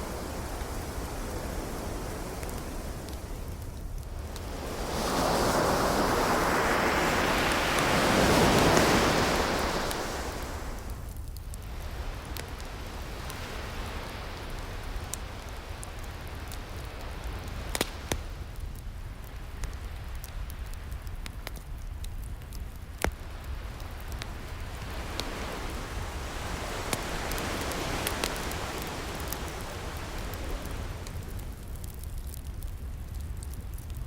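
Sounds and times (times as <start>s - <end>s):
ocean wave washing in: 0.0s - 11.1s, 23.3s - 31.6s
steady sea hiss: 0.0s - 11.1s, 11.7s - 18.5s, 23.2s - 31.6s
wood fire crackling: 0.0s - 34.0s.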